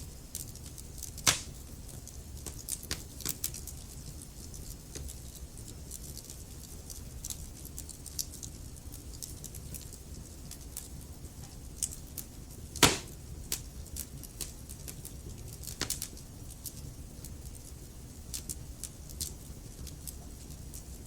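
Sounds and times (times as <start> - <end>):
logs crackling in fireplace: 0.0 - 21.0
low rumble of flame: 0.0 - 21.0
loud pop from fire: 1.2 - 1.5, 12.8 - 13.2.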